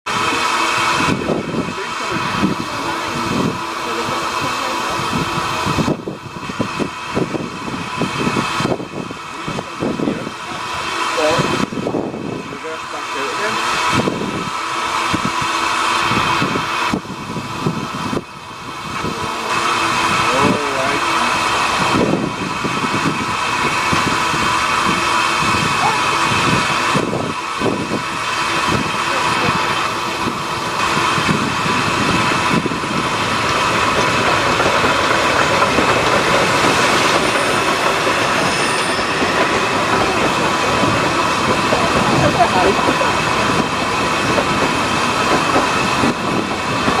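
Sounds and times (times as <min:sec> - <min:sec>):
train hissing: 0:00.1 - 0:47.0
high squeal: 0:36.4 - 0:41.5.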